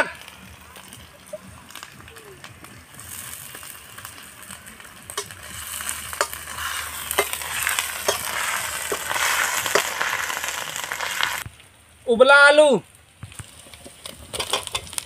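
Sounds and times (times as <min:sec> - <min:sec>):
vegetables sizzling in hot oil: 0:00.0 - 0:11.5, 0:13.2 - 0:15.0
spatula knocking and scraping pan: 0:06.1 - 0:10.0.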